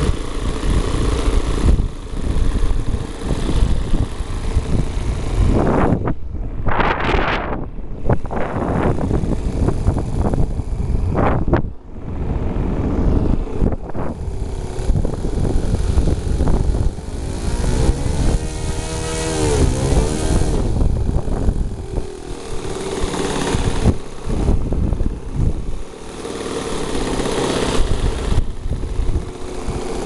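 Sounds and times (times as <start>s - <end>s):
model airplane engine droning: 0.0s - 30.0s
wind buffeting microphone: 0.0s - 30.0s.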